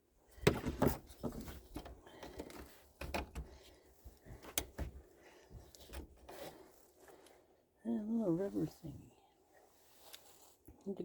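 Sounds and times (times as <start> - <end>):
rustling: 8.2 - 10.9.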